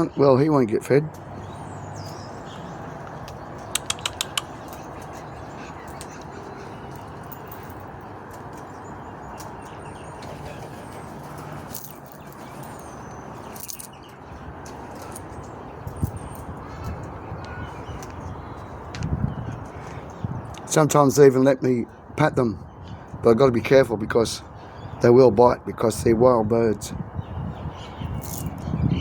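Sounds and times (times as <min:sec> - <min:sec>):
faint bird sounds: 0:00.0 - 0:20.7, 0:21.8 - 0:23.2, 0:24.4 - 0:25.2, 0:27.0 - 0:29.0
sharp clicks: 0:03.2 - 0:04.8.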